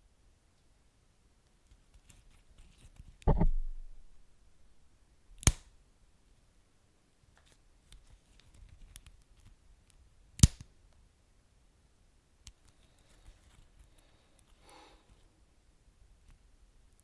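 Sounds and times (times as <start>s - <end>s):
loud sharp pop: 3.3s - 4.1s.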